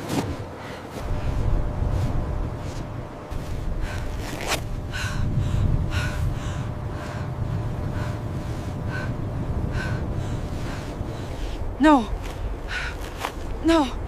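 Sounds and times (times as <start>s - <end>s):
low wind rumble: 0.0s - 14.0s
heavy breathing: 3.6s - 13.5s.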